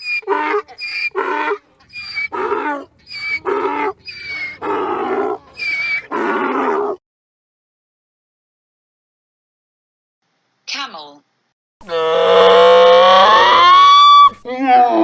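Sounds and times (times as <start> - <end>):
donkey braying: 0.0 - 6.9, 11.8 - 14.4.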